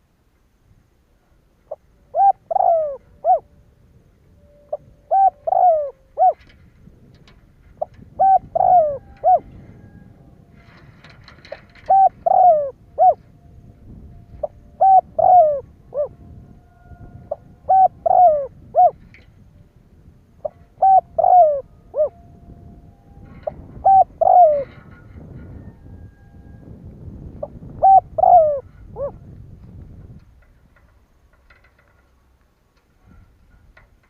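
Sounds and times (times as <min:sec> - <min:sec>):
dove cooing: 0:01.7 - 0:03.6, 0:04.6 - 0:07.1, 0:07.8 - 0:13.4, 0:14.3 - 0:19.3, 0:20.4 - 0:22.4, 0:23.2 - 0:29.4.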